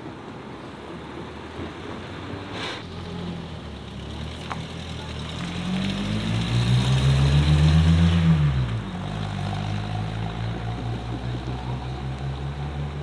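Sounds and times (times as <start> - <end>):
car engine revving: 2.5 - 13.0.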